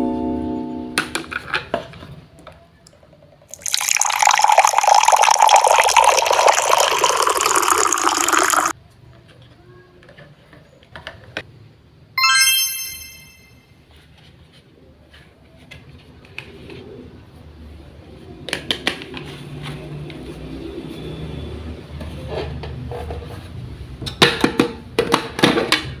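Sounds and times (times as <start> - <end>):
toy faucet water running: 3.5 - 8.7
ringing chime: 12.2 - 13.6.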